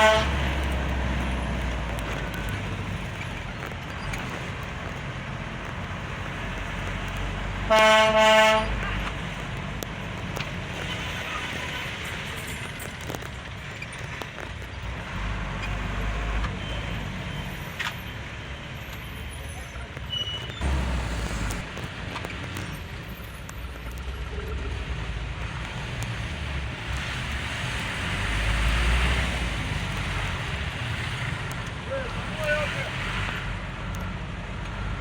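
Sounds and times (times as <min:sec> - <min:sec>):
vehicle horn tooting: 0:00.0 - 0:00.5, 0:07.7 - 0:09.1
road traffic: 0:00.0 - 0:35.0.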